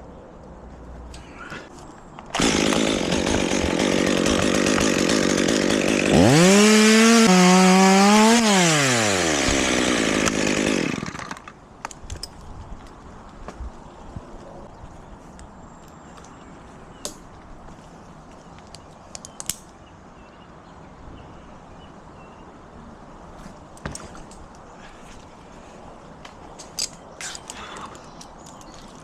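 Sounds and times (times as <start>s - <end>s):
chainsaw running and revving: 2.4s - 11.5s.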